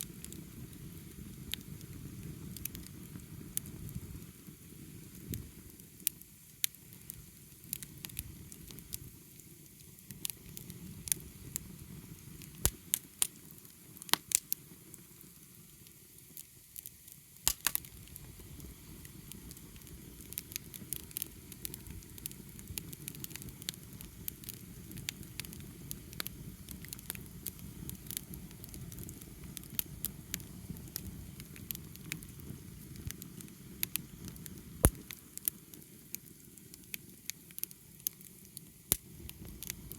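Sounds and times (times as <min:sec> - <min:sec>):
wood fire crackling: 0:00.0 - 0:39.9
sharp pops of fire: 0:10.1 - 0:14.7, 0:16.3 - 0:39.9.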